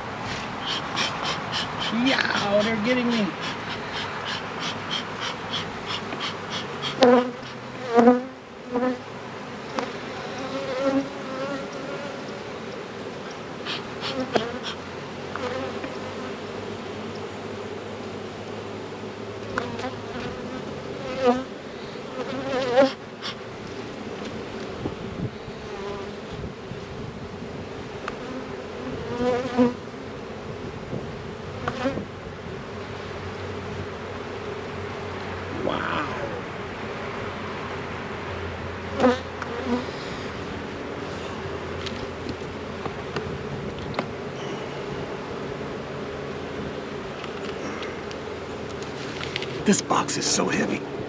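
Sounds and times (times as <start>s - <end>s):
honeybees buzzing: 0.0s - 51.0s
bees zipping past: 0.3s - 23.4s, 38.9s - 42.2s.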